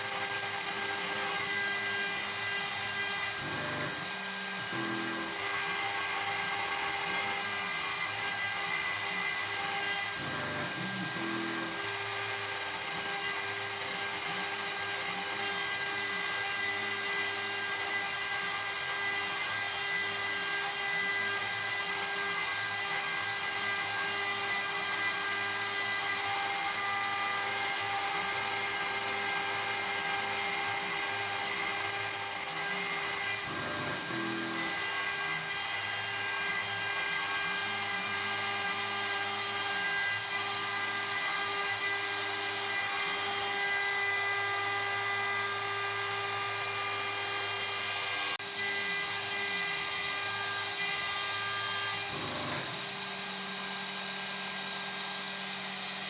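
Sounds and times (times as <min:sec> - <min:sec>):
router spindle high-pitched whine: 0:00.0 - 0:56.0.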